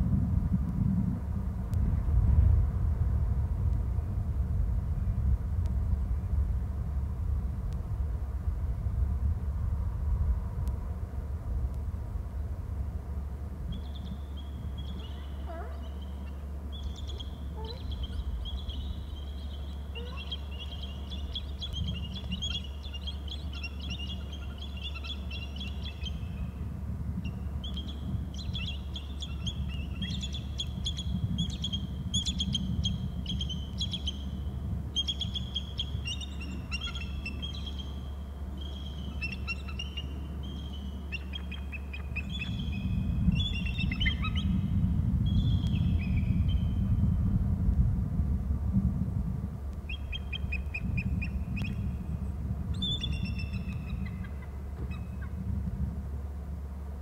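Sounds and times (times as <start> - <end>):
low rumble: 0.0 - 57.0
birds chirping and twittering: 13.7 - 26.6, 27.2 - 47.0, 49.8 - 55.4.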